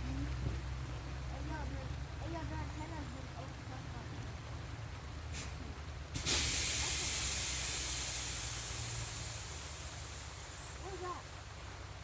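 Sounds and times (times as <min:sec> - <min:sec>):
loud hiss: 0:05.3 - 0:11.1.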